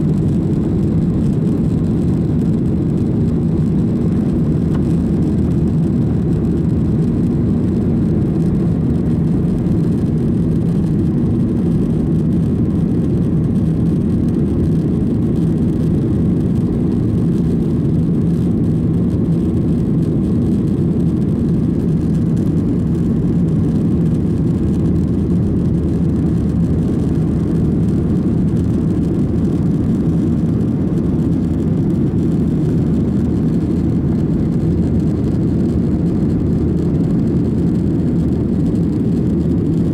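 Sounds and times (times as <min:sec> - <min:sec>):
faint hum: 0:00.0 - 0:39.9
jet engine drone in cabin: 0:00.0 - 0:39.9.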